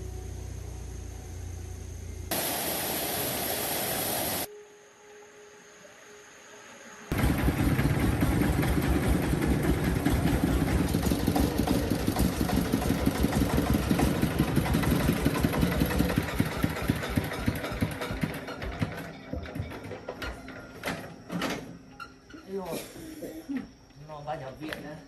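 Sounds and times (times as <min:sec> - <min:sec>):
faint hum: 0:00.0 - 0:07.1
tractor engine running: 0:07.1 - 0:21.1.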